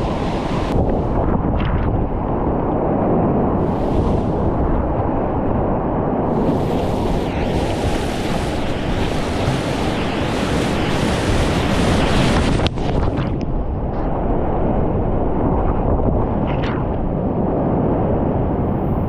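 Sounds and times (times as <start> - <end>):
whitewater rapids rushing: 0.0 - 0.7, 6.3 - 12.6
wind buffeting microphone: 0.0 - 19.0.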